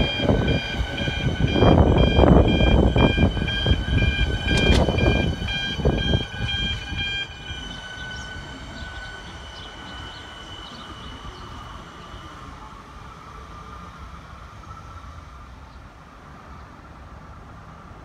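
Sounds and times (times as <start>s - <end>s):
train wheels clattering over rails: 0.0s - 13.2s
thin high whine: 0.0s - 15.2s.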